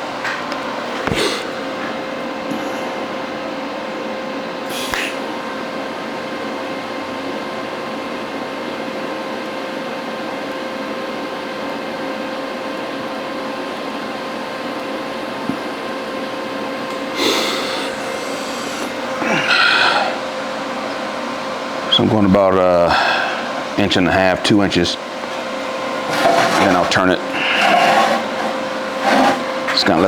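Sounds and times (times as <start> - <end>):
welding arc buzzing: 25.1 - 30.0.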